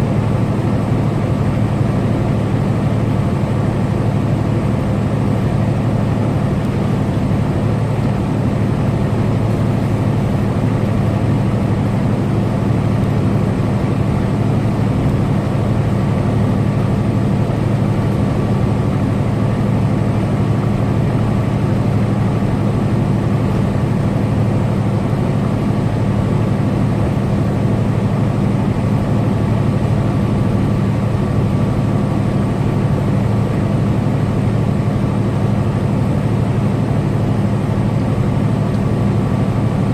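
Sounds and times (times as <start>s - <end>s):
truck diesel engine droning: 0.0s - 39.9s.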